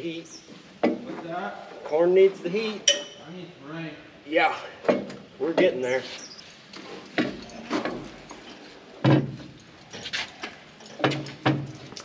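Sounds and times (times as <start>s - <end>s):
metal clanks and knocks: 7.0s - 9.6s.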